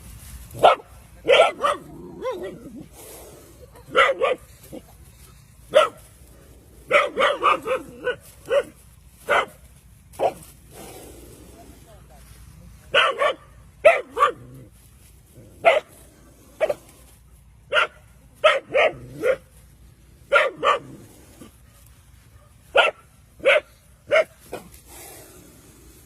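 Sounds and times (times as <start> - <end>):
dog barking: 0.6 - 2.6, 3.9 - 4.4, 5.7 - 6.0, 6.9 - 9.6, 12.9 - 14.5, 15.6 - 15.9, 17.7 - 19.5, 20.3 - 21.0, 21.7 - 24.7.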